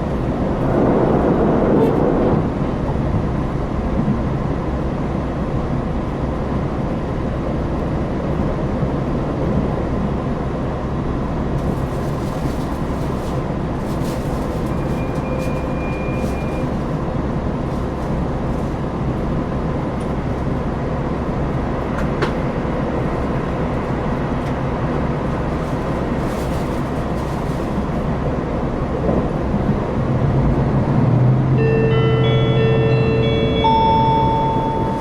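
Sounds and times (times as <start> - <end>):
rail running noise: 0.0 - 35.0
train engine drone: 0.0 - 35.0
multi-note chime: 31.6 - 35.0.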